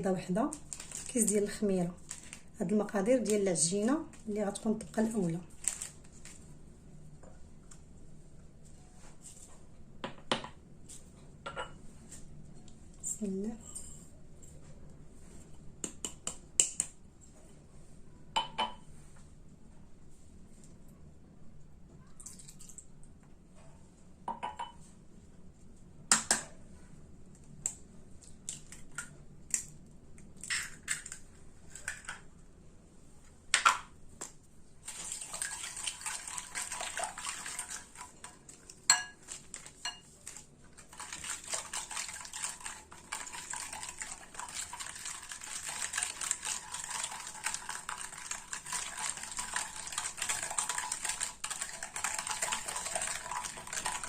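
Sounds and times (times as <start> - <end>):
utensil beating dough in bowl: 34.8 - 54.0.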